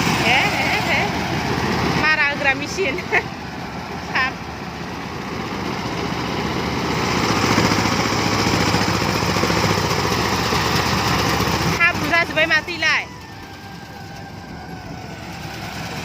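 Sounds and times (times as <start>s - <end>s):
tractor engine running: 0.0s - 16.0s
person calling: 11.8s - 16.0s.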